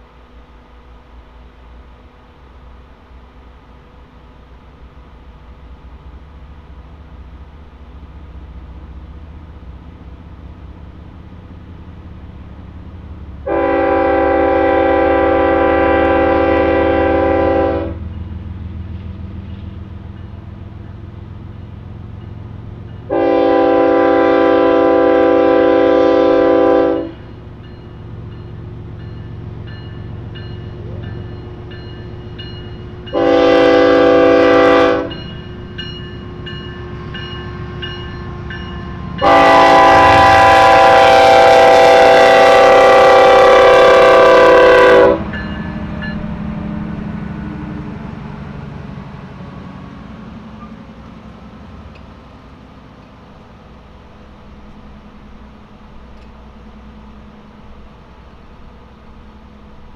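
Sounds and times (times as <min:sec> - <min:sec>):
low engine rumble: 0:00.0 - 0:59.9
locomotive air horn blasts: 0:13.4 - 0:18.0, 0:23.1 - 0:27.3, 0:33.0 - 0:35.3, 0:38.8 - 0:45.3.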